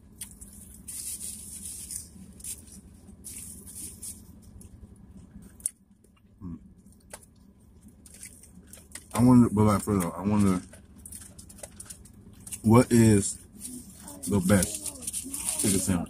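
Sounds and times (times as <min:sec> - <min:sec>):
person chewing: 0:00.0 - 0:09.1
steady low hum: 0:00.0 - 0:16.0.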